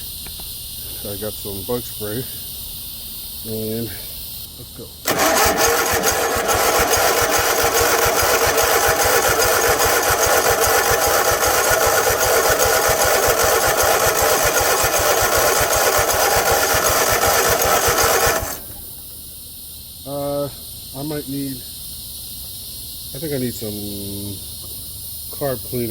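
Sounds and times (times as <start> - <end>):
mower engine cranking without starting: 5.0 - 18.8.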